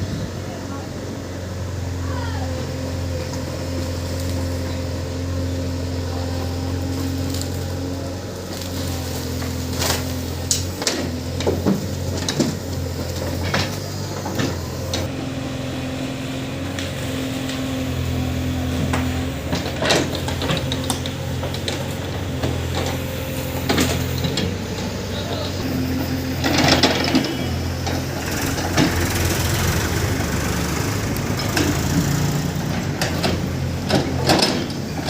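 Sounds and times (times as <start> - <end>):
heavy diesel engine running: 0.0 - 35.0
sharp knocks and clanks: 9.4 - 15.1, 31.4 - 35.0.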